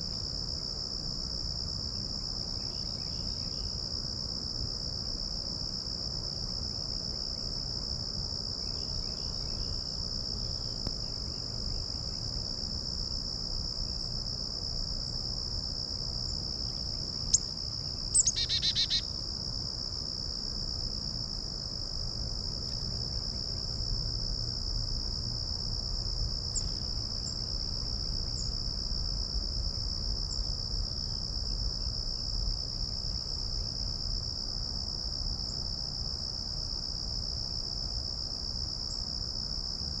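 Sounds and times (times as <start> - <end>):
crickets trilling: 0.0 - 40.0
faint high bird chirps: 18.2 - 19.0.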